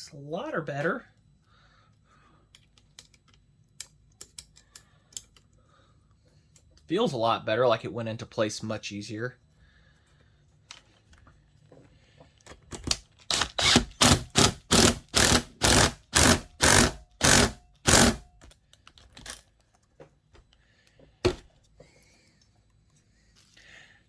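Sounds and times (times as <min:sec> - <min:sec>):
hand tool metal strokes: 0:13.3 - 0:18.3.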